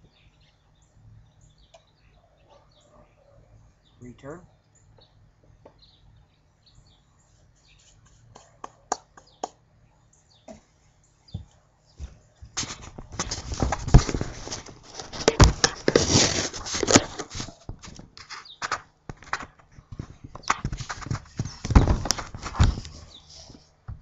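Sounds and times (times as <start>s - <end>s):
hands handling tools: 11.4s - 24.0s.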